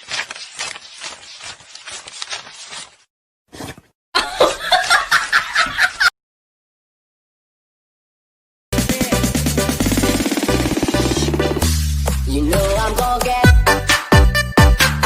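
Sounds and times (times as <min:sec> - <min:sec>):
laughter: 0:04.2 - 0:06.1.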